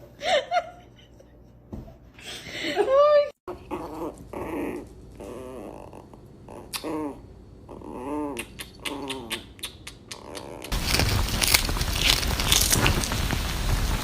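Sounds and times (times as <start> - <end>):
dog whining: 3.5 - 10.8.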